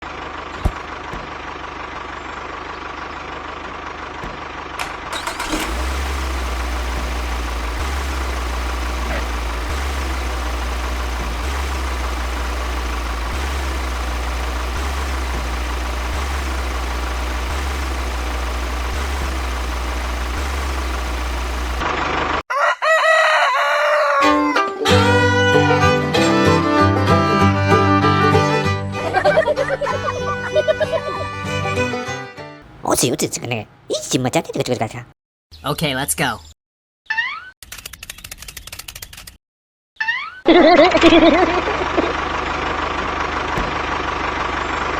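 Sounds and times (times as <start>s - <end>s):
mechanical drone with hum: 5.6s - 21.9s
rooster crowing: 22.5s - 24.6s.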